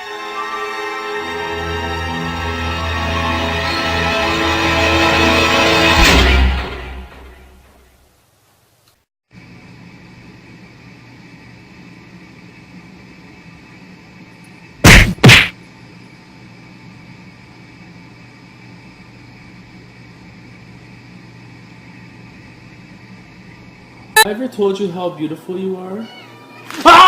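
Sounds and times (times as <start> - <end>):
steady low hum: 9.4 - 24.2
loud sharp bangs: 14.8 - 15.5.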